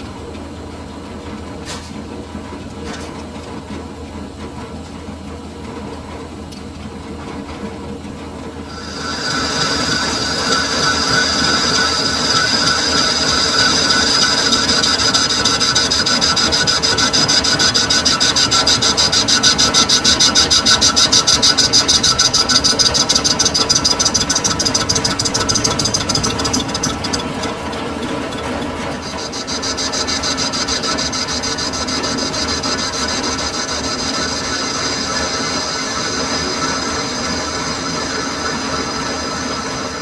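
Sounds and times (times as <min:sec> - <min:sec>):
metal lathe whining: 0:08.7 - 0:40.0.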